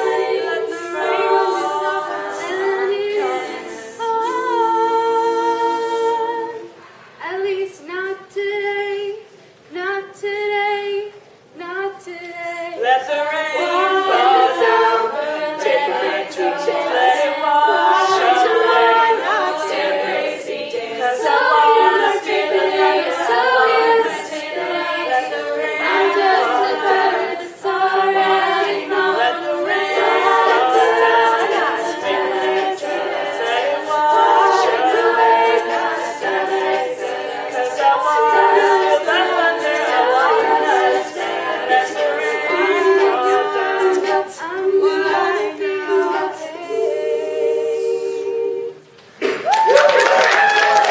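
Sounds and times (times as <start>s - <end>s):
women singing a cappella: 0.0s - 49.2s.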